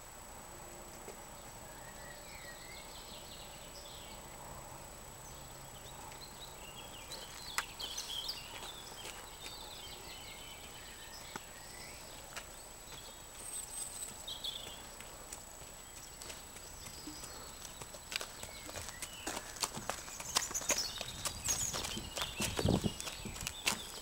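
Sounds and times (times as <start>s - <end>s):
small birds chirping: 1.0s - 24.0s.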